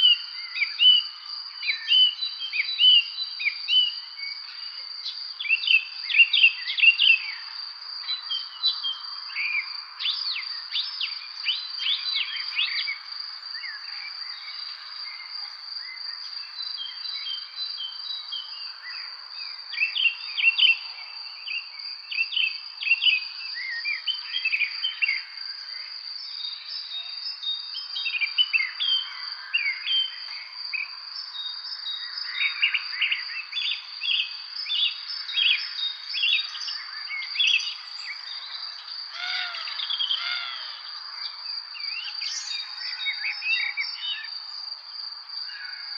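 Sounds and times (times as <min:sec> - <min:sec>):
songbirds chirping: 0:00.0 - 0:45.9
high-pitched insect trill: 0:23.0 - 0:45.9.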